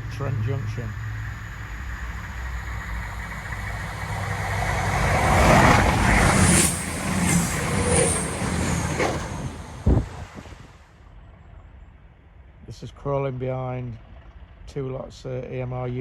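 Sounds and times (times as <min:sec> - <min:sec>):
wheels on rails: 0:00.0 - 0:10.7
train engine rumble: 0:00.0 - 0:11.6.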